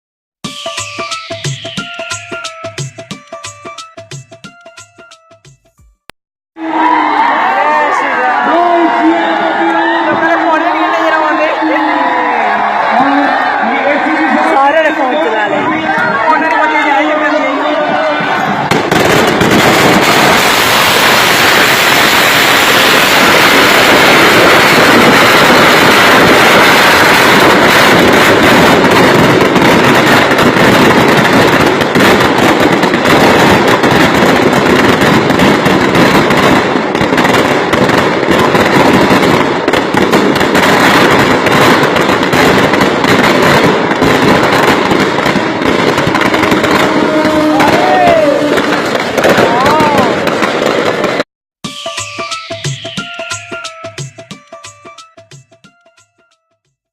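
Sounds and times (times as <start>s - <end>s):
firecrackers crackling: 7.2s - 51.3s.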